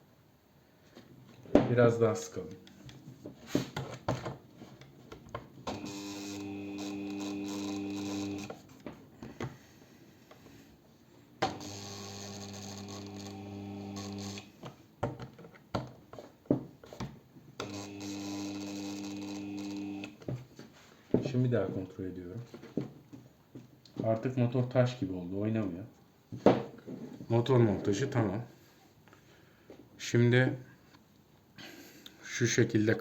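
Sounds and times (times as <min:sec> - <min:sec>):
cordless drill driving screws: 0:05.7 - 0:08.6, 0:11.4 - 0:14.5, 0:17.6 - 0:20.2.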